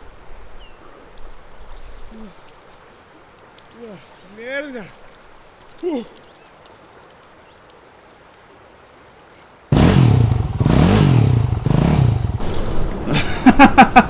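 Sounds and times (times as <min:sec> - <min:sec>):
dirt bike engine revving: 0:09.7 - 0:14.0.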